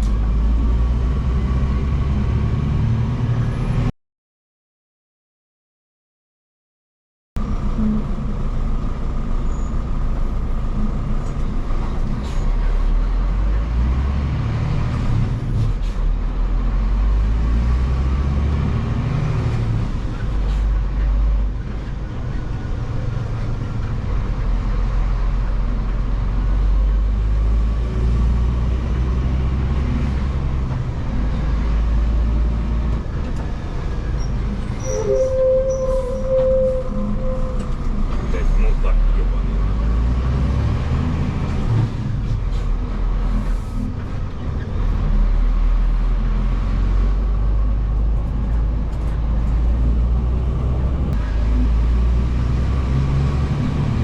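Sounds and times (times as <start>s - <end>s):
diesel truck engine droning: 0.0s - 3.9s, 7.4s - 54.0s
short steady tone: 34.8s - 37.9s.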